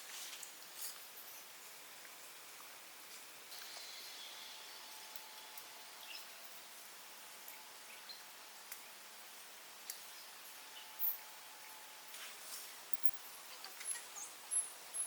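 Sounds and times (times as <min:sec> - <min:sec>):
steady soft hiss: 0:00.0 - 0:15.0
small ticks and clicks: 0:09.8 - 0:10.2.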